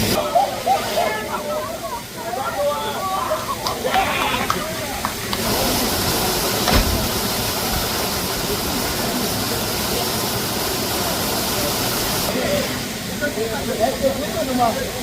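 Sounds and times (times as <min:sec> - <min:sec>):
waterfall rushing: 0:00.0 - 0:15.0
thump: 0:06.6 - 0:07.1.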